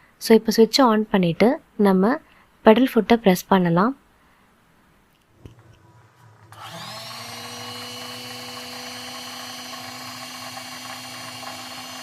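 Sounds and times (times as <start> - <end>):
sewing machine motor running: 5.6 - 12.0.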